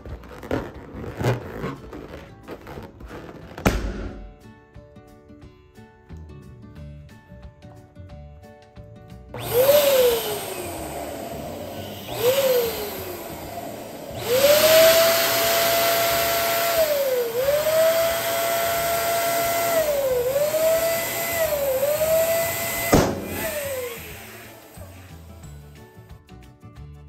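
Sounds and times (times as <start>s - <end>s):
balloon popping: 0.0s - 4.5s, 18.7s - 24.6s
electric balloon pump whining: 9.3s - 25.8s.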